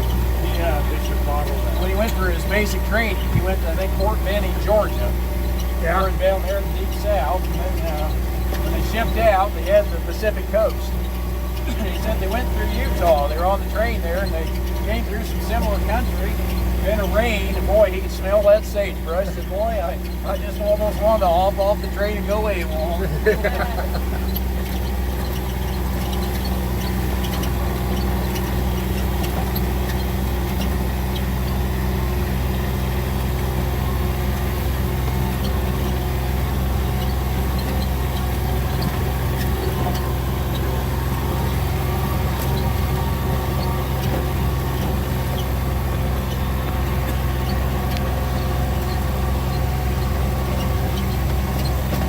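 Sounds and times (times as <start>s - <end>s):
vehicle engine running: 0.0s - 52.0s.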